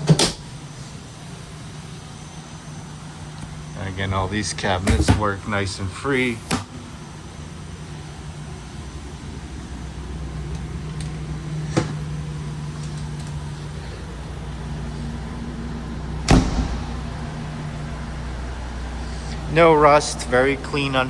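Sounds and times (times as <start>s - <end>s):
low vehicle hum: 6.8s - 21.0s
vehicle door slamming: 16.0s - 19.5s.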